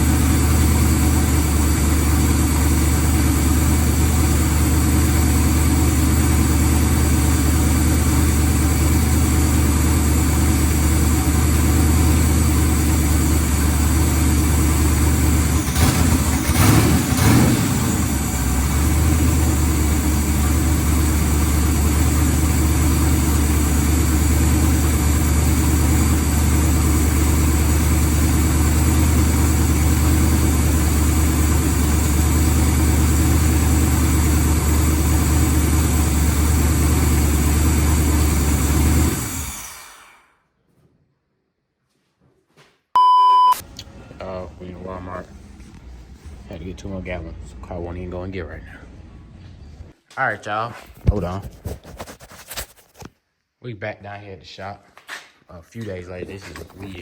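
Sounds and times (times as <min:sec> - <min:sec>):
car engine idling: 0:00.0 - 0:40.0, 0:43.6 - 0:49.9
rough burst of engine noise: 0:00.0 - 0:40.4.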